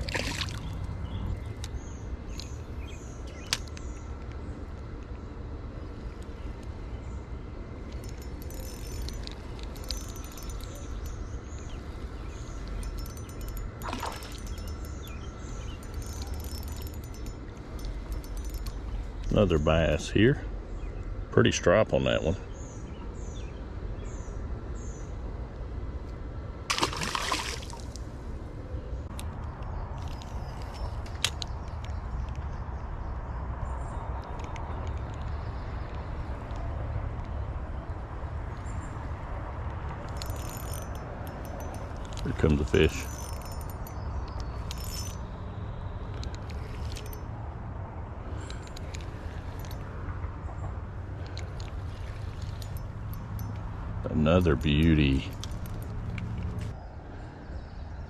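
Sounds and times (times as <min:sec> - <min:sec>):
water splash: 0:00.0 - 0:00.7, 0:26.7 - 0:27.9
small bird chirping: 0:00.0 - 0:04.2, 0:05.8 - 0:19.5.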